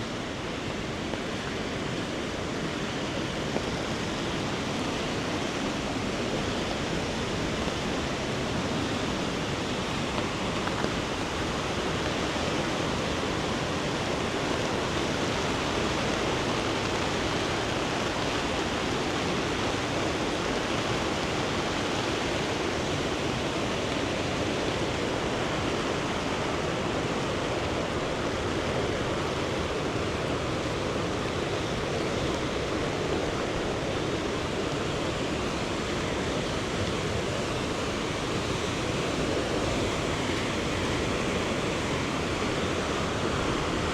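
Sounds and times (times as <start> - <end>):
fast-flowing river rushing: 0.0 - 43.9.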